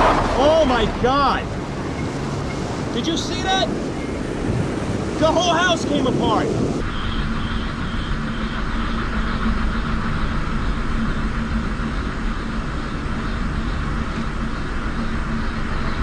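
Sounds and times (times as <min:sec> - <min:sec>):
constant low hum: 0:00.0 - 0:05.1
steady rushing noise: 0:00.0 - 0:06.4.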